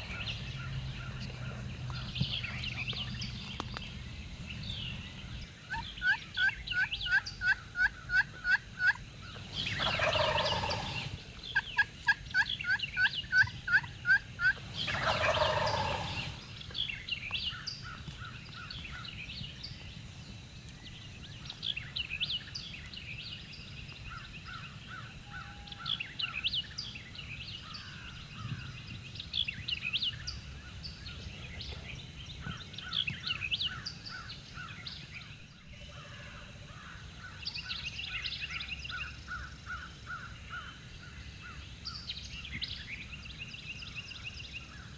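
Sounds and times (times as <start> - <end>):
faint songbird chirps: 0.0 - 44.9
turkey gobbling: 5.7 - 16.4
turkey hen yelps: 9.6 - 11.1, 12.4 - 16.4.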